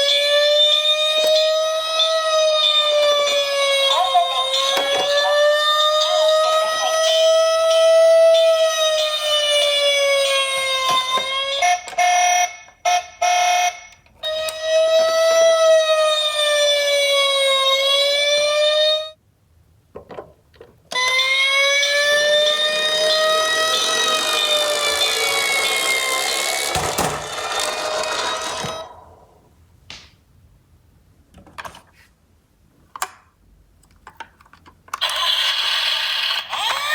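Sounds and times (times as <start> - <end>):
electronic toy siren wailing: 0.0 - 19.2, 20.9 - 29.2, 35.0 - 36.9
pulsed siren pattern: 0.0 - 19.2, 21.0 - 29.2.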